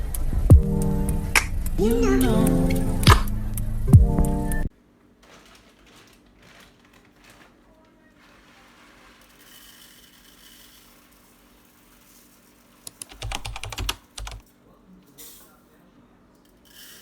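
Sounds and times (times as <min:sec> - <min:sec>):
light rustling: 0:05.1 - 0:09.8
computer keyboard clicks: 0:12.9 - 0:14.4.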